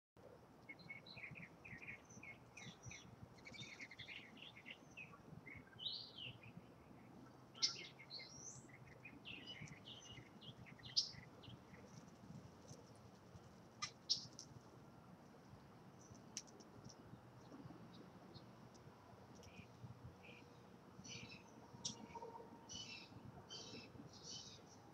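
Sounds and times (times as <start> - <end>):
birds chirping: 0.6 - 13.1, 13.8 - 14.6, 15.9 - 24.9
sharp bird calls: 7.6 - 11.9, 13.8 - 14.5.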